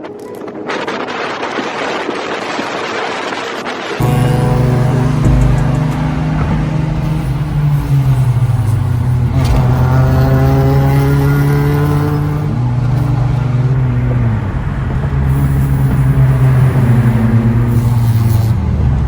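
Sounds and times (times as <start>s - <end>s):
car engine revving: 4.0s - 19.0s.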